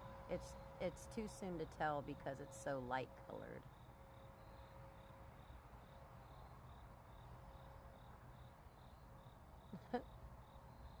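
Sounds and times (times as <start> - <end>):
crickets chirping: 2.2 - 11.0.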